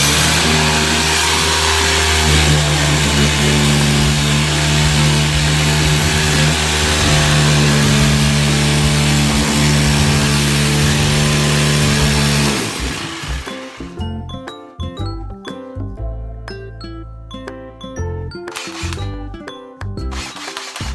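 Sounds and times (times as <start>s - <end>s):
power tool motor whining: 0.0s - 14.0s, 18.6s - 19.1s, 20.1s - 20.9s.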